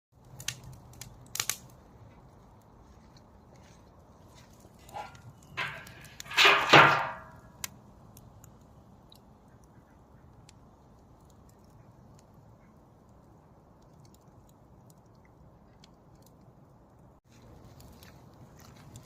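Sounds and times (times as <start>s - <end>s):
campfire crackling and popping: 0.1s - 19.0s.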